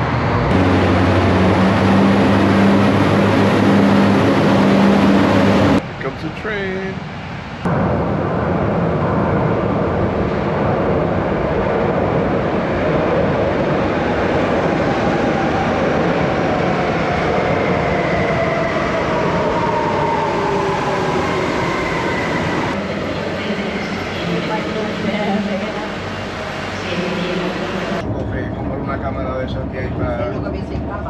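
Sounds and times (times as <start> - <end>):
train wheels rumbling: 0.0 - 7.0.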